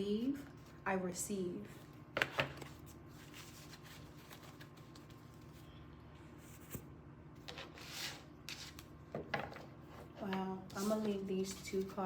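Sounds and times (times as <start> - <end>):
faint steady hum: 0.0 - 12.0
cards rustling and shuffling: 2.2 - 5.7, 7.4 - 8.9, 10.7 - 12.0.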